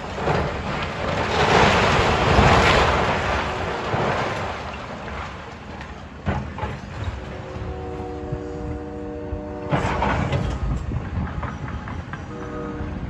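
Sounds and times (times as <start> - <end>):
rubble crashing down: 0.0 - 7.6.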